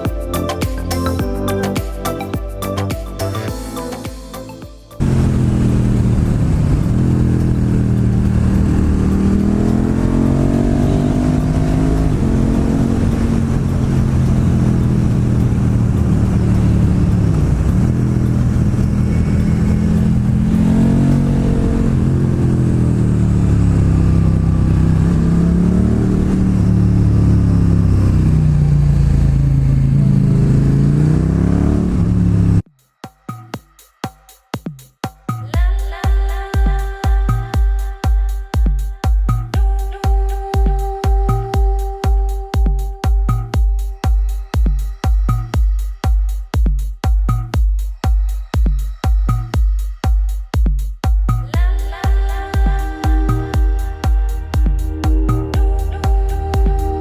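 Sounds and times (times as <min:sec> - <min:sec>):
motorcycle engine revving: 0:05.0 - 0:32.6
wind noise on microphone: 0:05.0 - 0:32.6.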